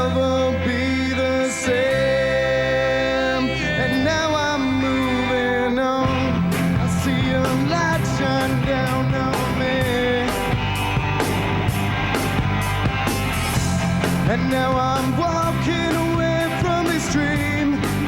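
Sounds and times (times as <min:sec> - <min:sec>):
melodic electric guitar lines: 0:00.0 - 0:18.0
drums and cymbal hits: 0:06.1 - 0:18.0.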